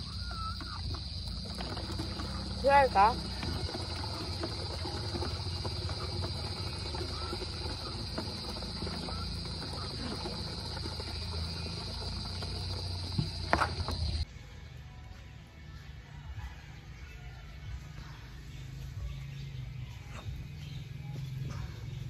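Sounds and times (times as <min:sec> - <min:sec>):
hand water pump knocking: 0:00.0 - 0:14.2
high insect drone: 0:00.0 - 0:14.3.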